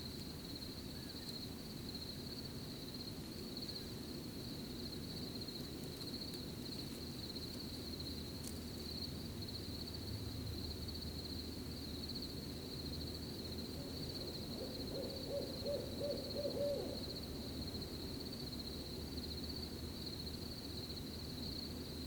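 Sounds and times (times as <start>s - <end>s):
crickets trilling: 0.0s - 22.0s
owl hooting: 13.8s - 17.2s.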